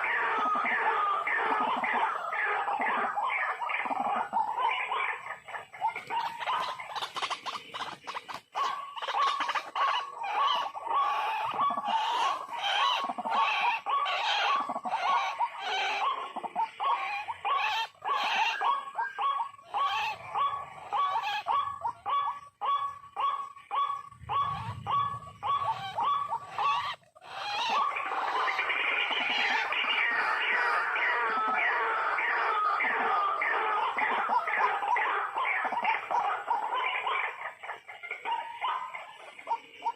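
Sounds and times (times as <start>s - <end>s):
bird calling harsh notes: 21.6s - 30.0s.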